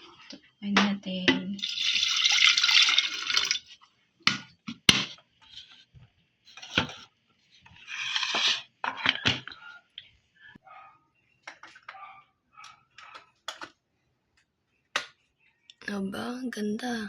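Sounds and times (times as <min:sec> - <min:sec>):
water running into a kettle: 0:01.6 - 0:03.8.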